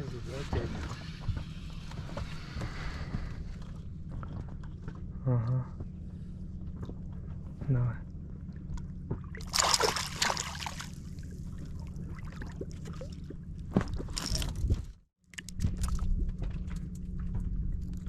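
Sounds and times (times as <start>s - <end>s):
steady low hum: 0.0s - 18.0s
water splashing at a boat: 8.5s - 14.8s.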